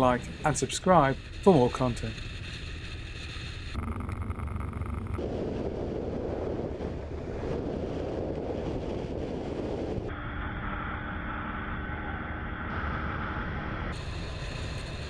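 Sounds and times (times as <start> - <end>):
wind buffeting microphone: 0.0 - 10.7
motorcycle engine rumble: 0.0 - 15.0.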